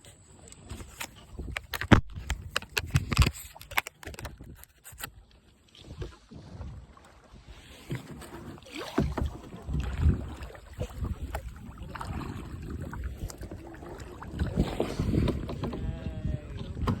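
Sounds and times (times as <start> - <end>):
paddles splashing and knocking: 0.4 - 17.0
wind buffeting microphone: 9.0 - 17.0.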